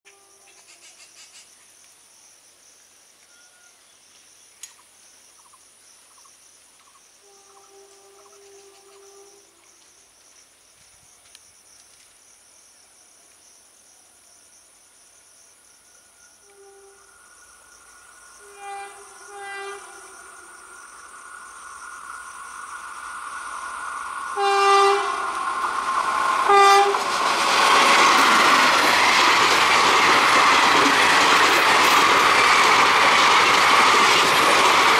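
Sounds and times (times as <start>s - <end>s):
locomotive horn blasts: 7.2s - 9.5s, 16.4s - 17.1s, 18.4s - 20.5s, 24.3s - 25.4s, 26.4s - 27.0s
train wheels rumbling on rail: 16.4s - 34.9s.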